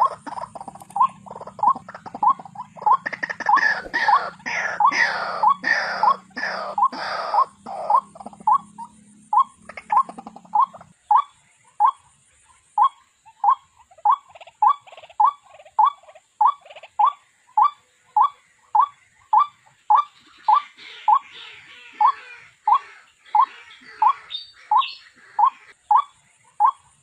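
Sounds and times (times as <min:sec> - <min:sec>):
waterhen rising call: 0:00.0 - 0:08.6
scratchy bird chatter: 0:00.0 - 0:12.0, 0:12.8 - 0:26.8.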